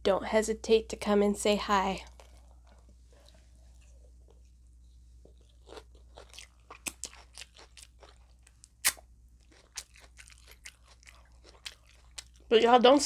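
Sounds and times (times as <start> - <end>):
crunching taco shell: 5.4 - 12.5.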